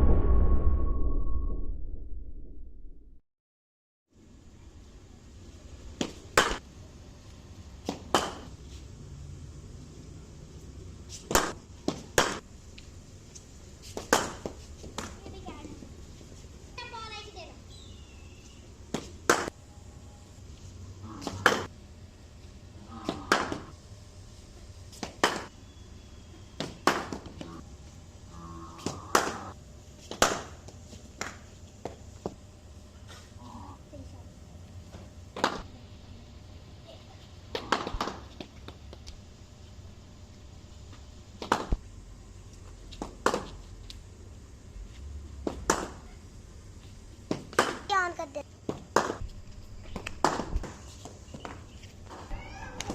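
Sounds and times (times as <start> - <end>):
bat cracking a ball: 7.8 - 8.5, 14.0 - 15.2, 21.2 - 21.7, 23.1 - 23.7, 25.0 - 25.5, 26.6 - 27.4, 28.8 - 29.5, 41.4 - 41.8, 47.3 - 47.9, 50.0 - 50.8.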